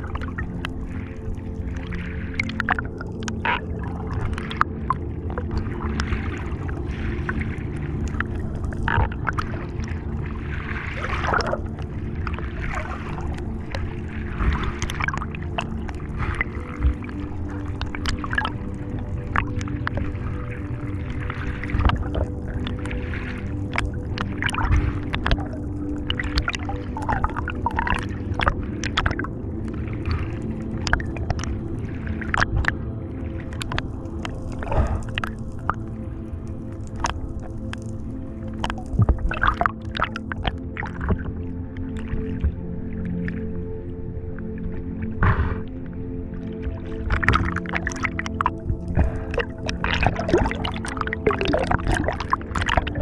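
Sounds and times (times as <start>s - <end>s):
low underwater hum: 0.0s - 53.0s
bubbling bursts: 8.4s - 10.2s, 10.9s - 20.1s, 23.7s - 29.3s, 34.6s - 35.8s, 38.6s - 41.3s, 47.0s - 53.0s.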